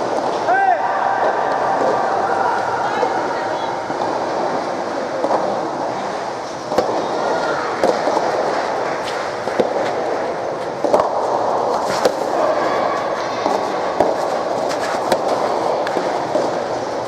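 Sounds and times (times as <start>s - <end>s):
crowd murmur: 0.0s - 17.0s
racket hitting tennis ball: 6.7s - 17.0s.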